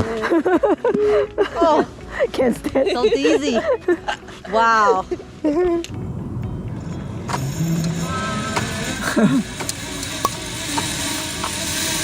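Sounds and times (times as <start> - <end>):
zip-line rushing hiss: 7.5 - 12.0.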